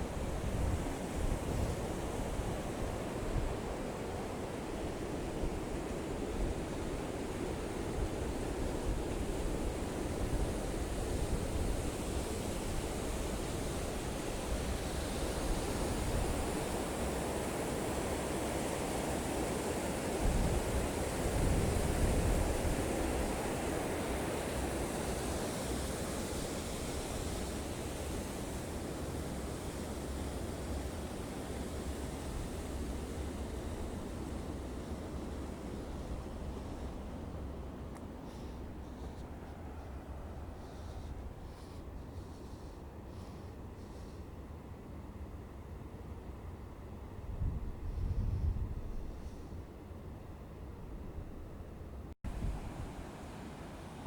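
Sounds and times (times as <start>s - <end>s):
wind buffeting microphone: 47.2s - 49.7s.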